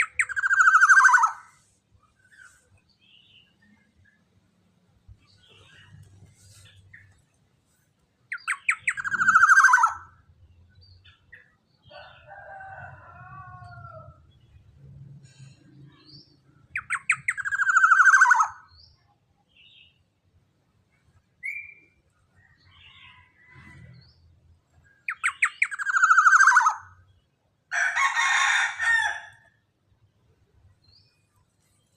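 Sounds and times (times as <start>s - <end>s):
oriole harsh downward calls: 0.0s - 1.8s, 8.5s - 10.2s.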